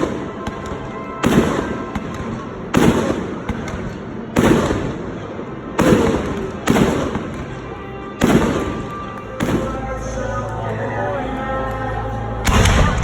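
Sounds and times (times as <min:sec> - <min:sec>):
fireworks booming: 0:00.0 - 0:10.2, 0:12.5 - 0:13.0.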